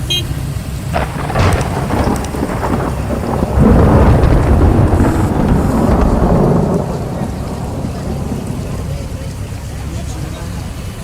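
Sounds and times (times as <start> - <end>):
steady rain: 0.0 - 11.0
thunder crack and rumble: 0.9 - 11.0.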